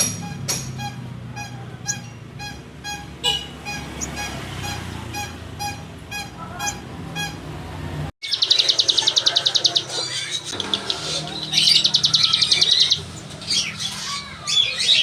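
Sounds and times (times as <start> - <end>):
songbird trilling: 8.2 - 15.0.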